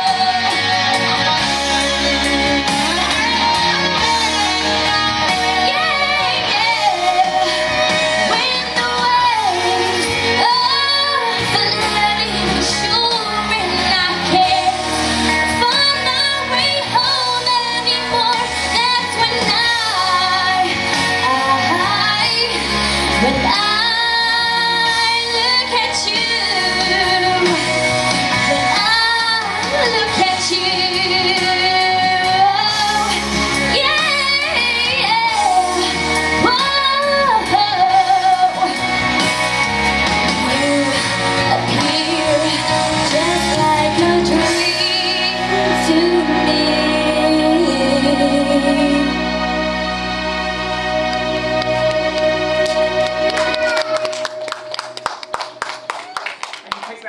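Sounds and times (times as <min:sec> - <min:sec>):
woman singing with vibrato: 0:00.0 - 0:50.0
pop backing track: 0:00.0 - 0:57.0.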